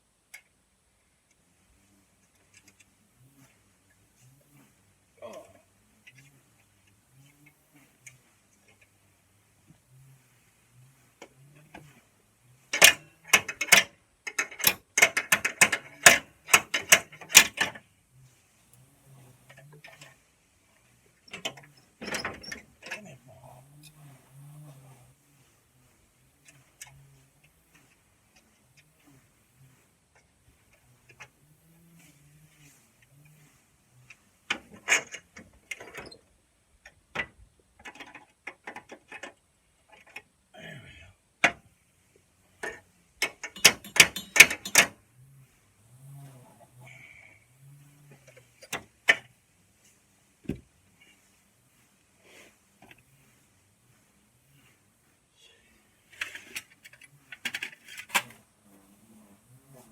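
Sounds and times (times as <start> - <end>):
sharp clicks and knocks: 12.7 - 17.8, 34.1 - 40.3, 41.4 - 41.7, 42.6 - 45.0
hand tool metallic clicks: 43.3 - 44.9.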